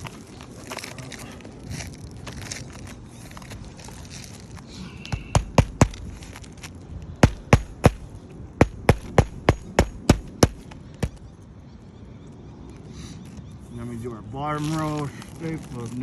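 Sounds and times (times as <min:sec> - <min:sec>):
hammer driving nails: 0:05.1 - 0:06.1, 0:07.2 - 0:11.2.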